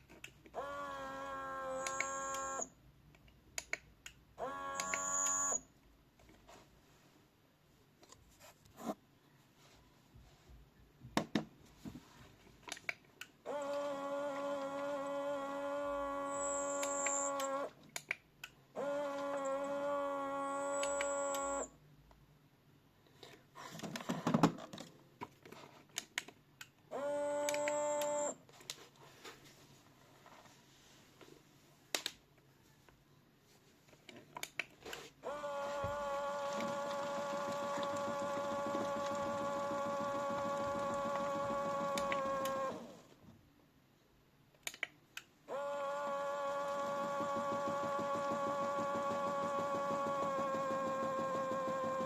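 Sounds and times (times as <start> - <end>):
toy button clicks: 4.8 - 5.4
electronic beep: 4.8 - 5.6
toy washing machine hum: 13.5 - 17.8, 18.8 - 21.6, 35.2 - 43.1, 45.5 - 52.0.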